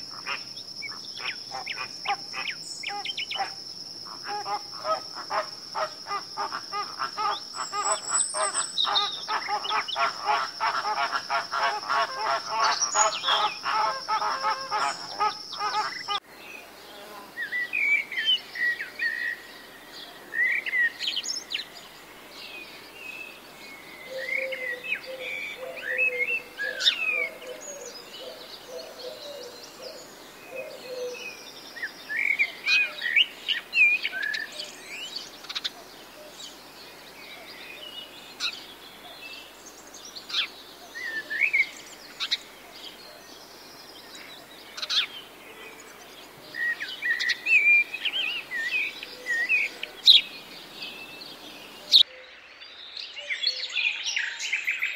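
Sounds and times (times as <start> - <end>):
high insect buzz: 0.0 - 17.9
songbird chirps: 0.0 - 54.9
flamingos honking: 4.4 - 16.2.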